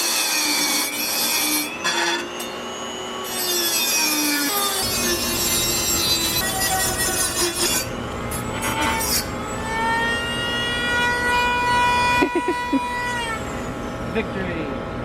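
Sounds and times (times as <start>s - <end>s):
power tool cutting metal: 0.0s - 14.6s.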